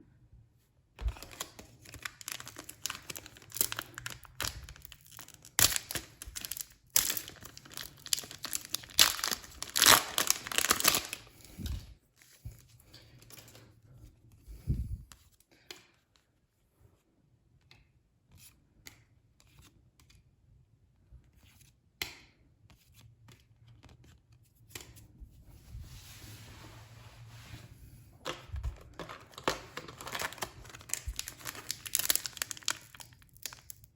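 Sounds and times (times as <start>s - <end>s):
plastic packaging tearing: 1.0s - 11.3s, 28.4s - 33.9s
plastic crinkling: 1.0s - 11.9s, 28.2s - 33.9s
soft rustle: 25.2s - 28.2s.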